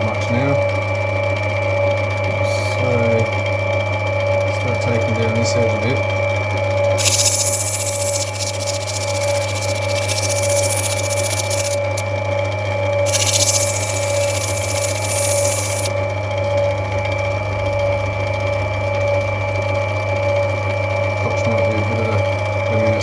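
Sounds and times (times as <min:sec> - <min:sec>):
grinding machine motor humming: 0:07.0 - 0:12.0, 0:13.1 - 0:16.0
stone grinding hiss: 0:07.0 - 0:12.0, 0:13.1 - 0:16.0.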